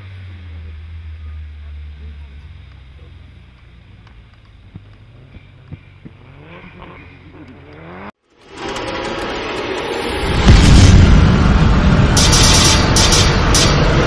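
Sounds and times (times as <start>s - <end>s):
rally car engine revving: 0.0s - 14.0s
loud rising noise: 7.6s - 14.0s.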